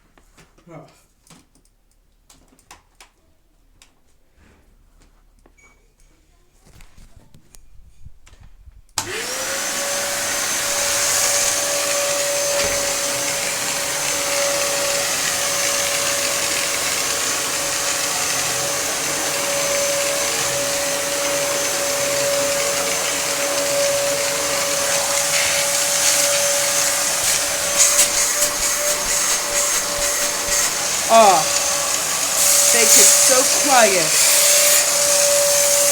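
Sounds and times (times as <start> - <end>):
vacuum cleaner motor whining: 9.0 - 35.9.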